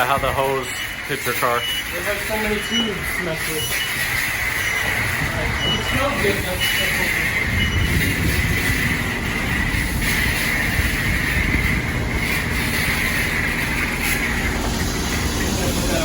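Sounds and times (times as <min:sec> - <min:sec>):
spray wand hissing: 0:01.1 - 0:16.0
low rumble: 0:04.4 - 0:16.0.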